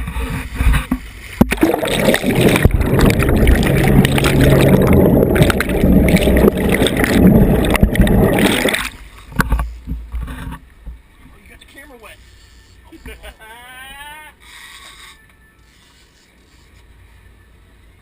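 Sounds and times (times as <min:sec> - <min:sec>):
water rushing and splashing: 0:01.0 - 0:09.2.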